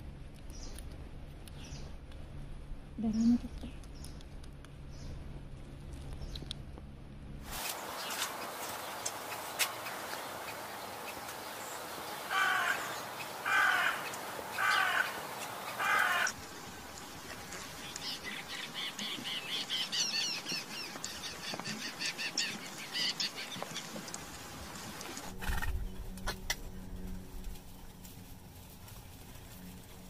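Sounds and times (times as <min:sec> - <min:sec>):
birds chirping: 0:07.6 - 0:27.2
large bird harsh calls: 0:07.8 - 0:24.4.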